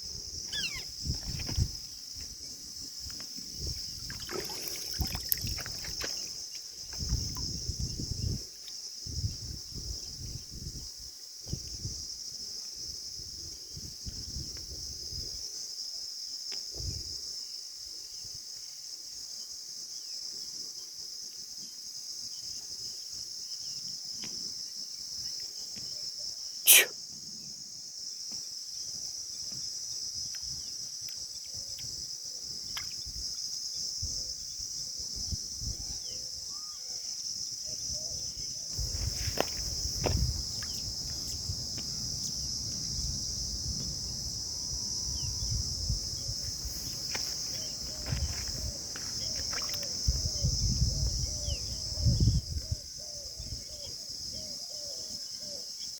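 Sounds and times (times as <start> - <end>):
crickets chirping: 0.0 - 55.9
short soft call: 26.7 - 26.9.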